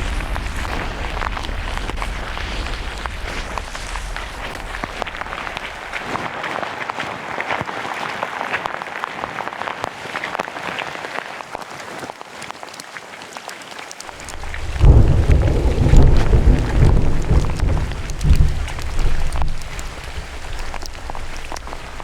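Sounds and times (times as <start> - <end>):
loud low rumble: 0.0 - 6.1, 14.2 - 22.0
rain pattering on leaves: 0.0 - 22.0.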